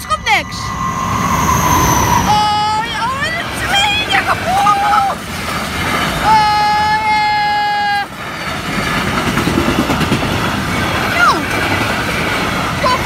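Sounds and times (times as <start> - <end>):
steady high tone: 0.0 - 5.1
train wheels rattling on rails: 0.0 - 13.0.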